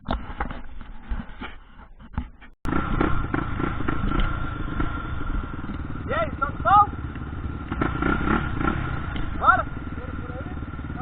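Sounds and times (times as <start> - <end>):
motorcycle engine running: 2.6 - 11.0.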